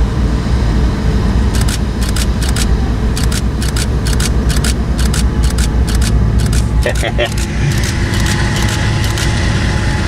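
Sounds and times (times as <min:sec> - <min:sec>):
diesel locomotive rumble: 0:00.0 - 0:10.0
train wheels clicking over rail joints: 0:01.6 - 0:09.3.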